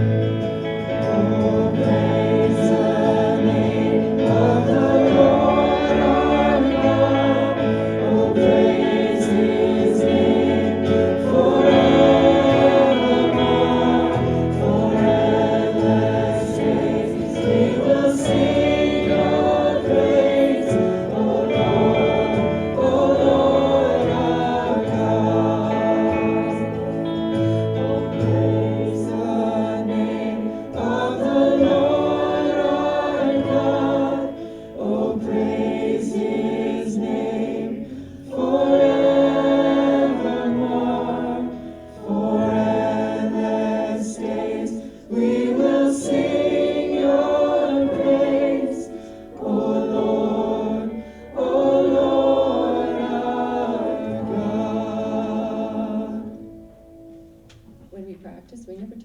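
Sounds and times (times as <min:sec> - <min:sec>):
group singing in harmony: 0:00.0 - 0:57.4
light rhythm: 0:00.0 - 0:59.0.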